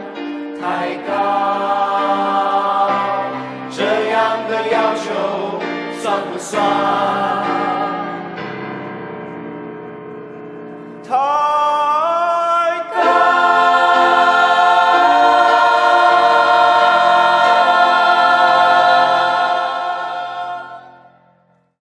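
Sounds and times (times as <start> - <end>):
choir holding sustained chord: 0.0 - 8.7, 12.9 - 21.4.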